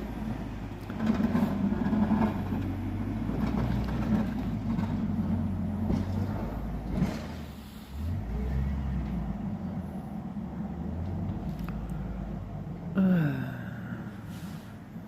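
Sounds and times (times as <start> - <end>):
snow plow truck driving by: 0.0 - 15.0.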